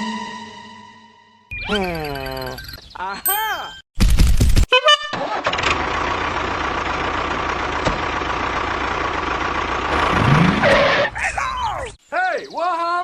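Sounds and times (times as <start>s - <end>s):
vehicle engine starting and idling: 5.2s - 11.2s.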